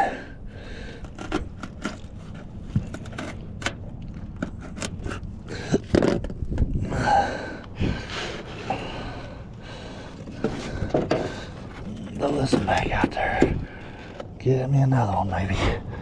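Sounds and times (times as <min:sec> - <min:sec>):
scraping and rustling: 0:00.8 - 0:06.6, 0:10.1 - 0:14.2.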